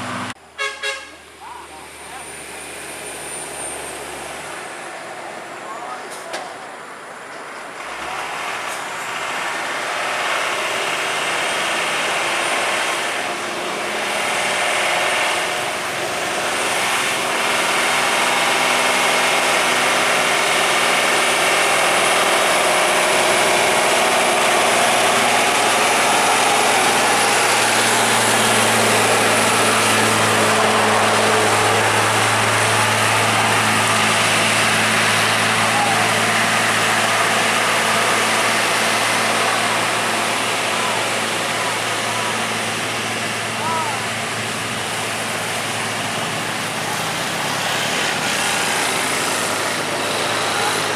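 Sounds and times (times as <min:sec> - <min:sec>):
truck diesel engine running: 0:00.0 - 0:50.9.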